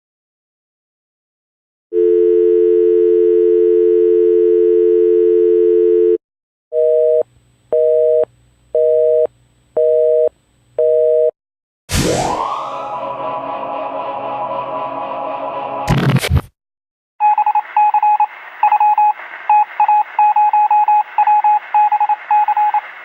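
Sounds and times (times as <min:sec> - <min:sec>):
busy signal beeps: 0:02.0 - 0:06.2, 0:17.2 - 0:22.8
telephone dial tone: 0:02.0 - 0:06.2
rising sweep effect: 0:11.9 - 0:15.9.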